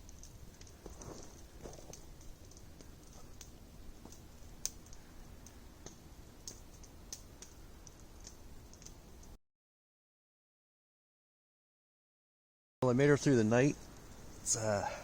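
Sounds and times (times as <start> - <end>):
fire pops and snaps: 0.0 - 9.4, 13.6 - 14.9
wood fire crackling: 0.0 - 9.4, 12.8 - 15.0.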